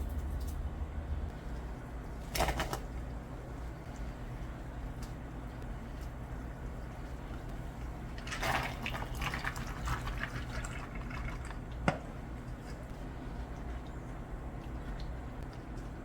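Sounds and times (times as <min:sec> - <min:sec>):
low kitchen hum: 0:00.0 - 0:16.0
liquid pouring into container: 0:08.1 - 0:11.8.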